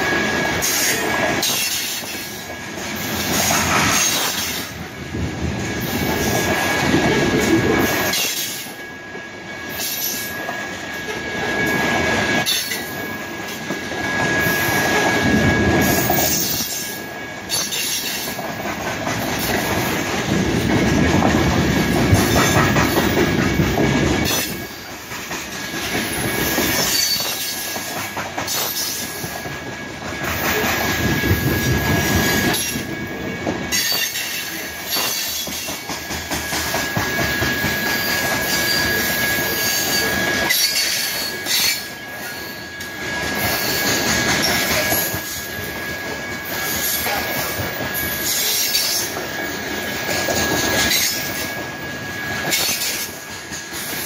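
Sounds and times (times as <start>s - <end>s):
train wheels rumbling and clattering: 0.0s - 54.0s
high wheel squeal: 9.6s - 18.4s, 26.0s - 27.9s, 30.3s - 35.8s, 36.5s - 54.0s.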